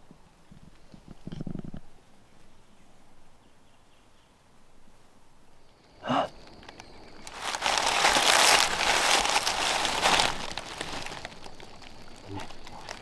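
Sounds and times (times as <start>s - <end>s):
loud crinkling rustle: 7.2s - 13.0s.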